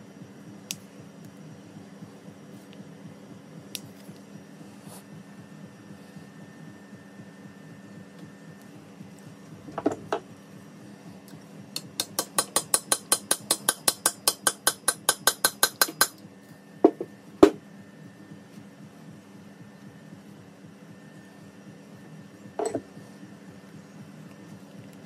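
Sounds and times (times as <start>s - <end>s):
faint background hum: 0.0s - 25.0s
hammer tapping on metal: 11.7s - 16.2s.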